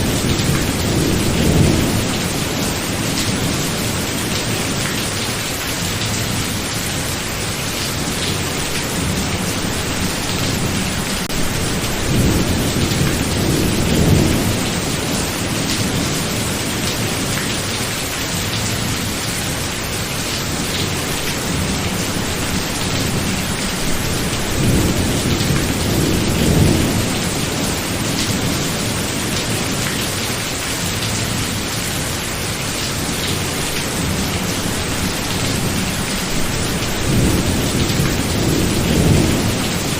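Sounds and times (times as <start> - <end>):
heavy rain: 0.0 - 39.9
thunder rumbling: 9.0 - 17.4, 20.6 - 29.8, 33.2 - 39.9.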